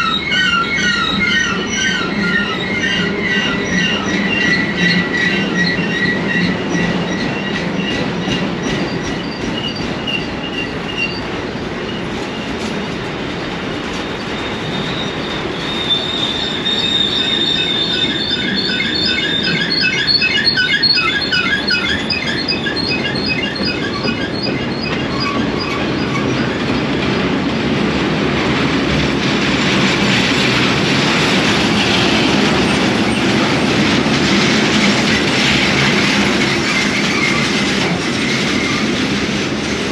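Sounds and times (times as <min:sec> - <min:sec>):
metallic wheel squeals: 0:00.0 - 0:12.6, 0:14.0 - 0:27.0, 0:31.0 - 0:39.0
train wheels rumbling on rails: 0:00.0 - 0:39.9.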